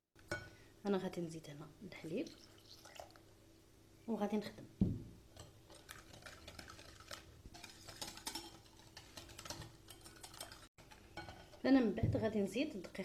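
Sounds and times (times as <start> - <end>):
whisk scraping a bowl: 5.4 - 11.7.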